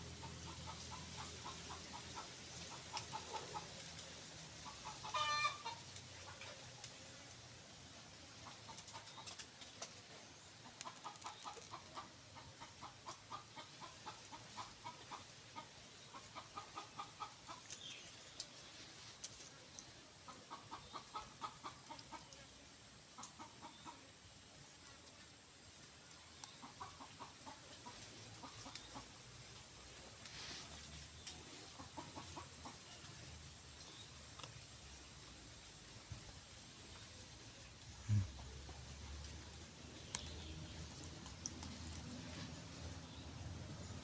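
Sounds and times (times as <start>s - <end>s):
bird clucking calls: 0.1s - 3.8s, 4.6s - 6.6s, 10.5s - 18.6s, 20.3s - 22.4s, 26.3s - 29.2s, 30.4s - 33.0s.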